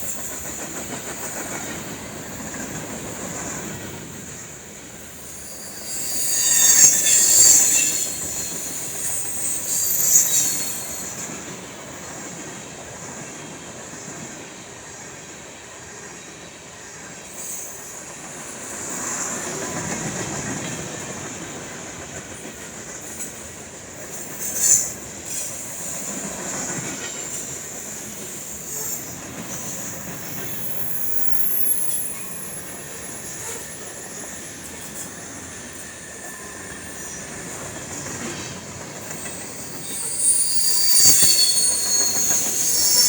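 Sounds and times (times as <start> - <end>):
train wheels rumbling on rails: 0.0 - 43.0
high wheel squeal: 5.0 - 11.4, 27.3 - 43.0.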